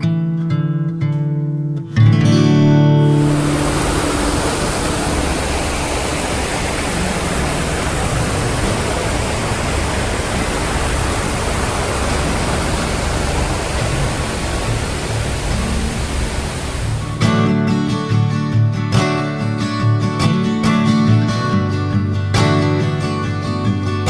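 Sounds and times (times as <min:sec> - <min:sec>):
stream water rushing: 0:03.0 - 0:17.2.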